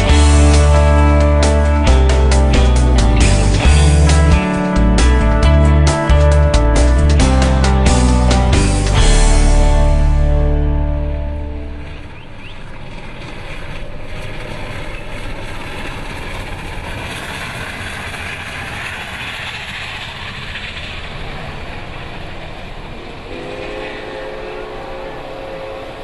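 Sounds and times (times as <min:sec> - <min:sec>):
train wheels on rails: 0:11.8 - 0:26.0
train horn: 0:22.9 - 0:26.0.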